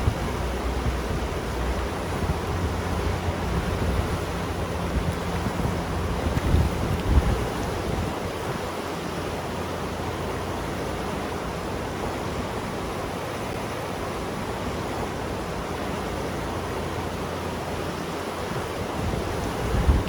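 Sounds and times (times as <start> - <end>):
wind buffeting microphone: 0.0 - 8.8, 18.4 - 20.0
river water rushing: 0.0 - 20.0.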